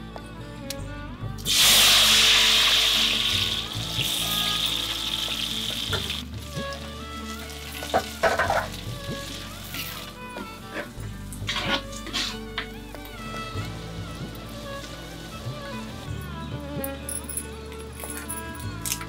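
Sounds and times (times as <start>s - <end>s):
shallots sizzling in a hot pot: 1.4s - 12.9s, 13.6s - 16.2s
spatula scraping: 7.3s - 12.6s.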